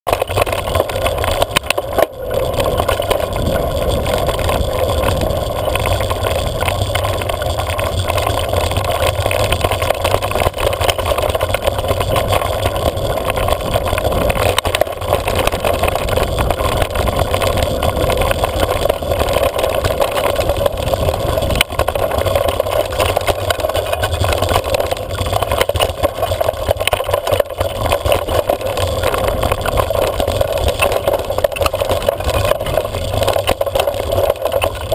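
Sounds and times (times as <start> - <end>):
road noise rumble: 0.2 - 25.2
wind rushing: 1.9 - 7.4.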